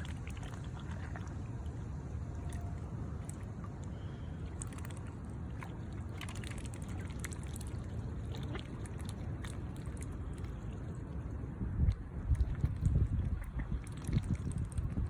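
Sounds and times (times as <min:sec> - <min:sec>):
water splashing and trickling: 0:00.0 - 0:15.0
wind rumbling on microphone: 0:00.0 - 0:15.0
small quick splashes: 0:02.4 - 0:11.2.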